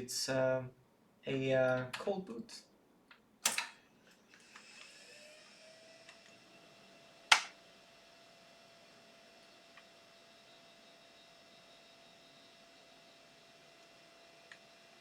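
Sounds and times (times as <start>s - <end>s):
sharp click: 3.4s - 3.8s, 7.3s - 7.6s
computer fans whirring: 4.5s - 15.0s
power button click: 7.3s - 7.5s.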